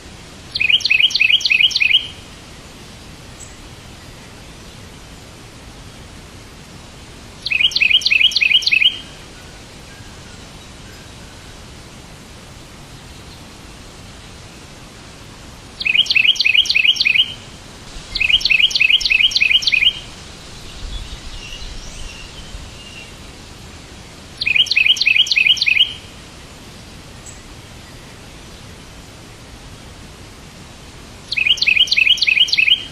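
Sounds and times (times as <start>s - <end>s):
steady background hiss: 0.0s - 32.9s
bird chirping rapidly: 0.6s - 2.2s, 7.4s - 9.1s, 15.8s - 17.4s, 18.0s - 23.2s, 24.4s - 26.1s, 31.3s - 32.9s.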